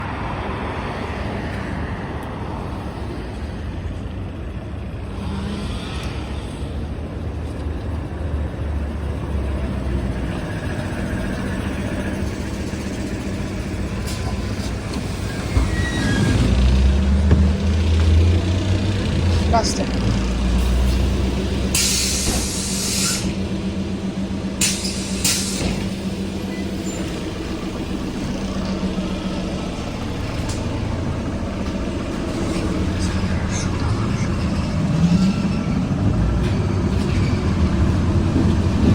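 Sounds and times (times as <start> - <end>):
trolleybus rumble: 0.0 - 38.9
compressed air hissing: 21.7 - 23.4.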